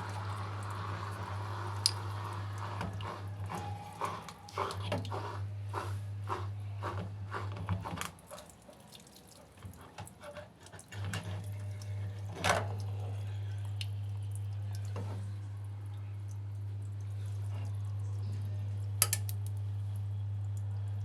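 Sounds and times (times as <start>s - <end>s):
water dripping and splashing: 8.3s - 10.9s.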